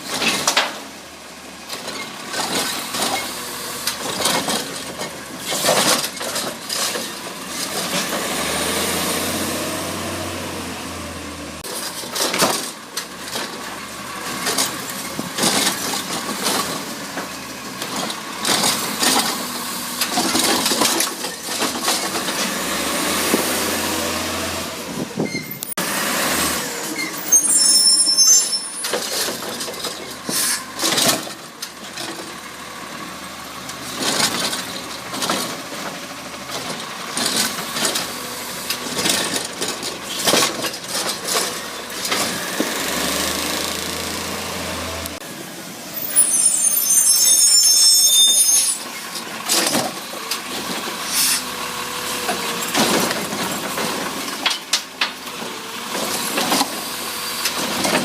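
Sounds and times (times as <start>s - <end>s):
garbage truck engine running: 28.9s - 46.3s.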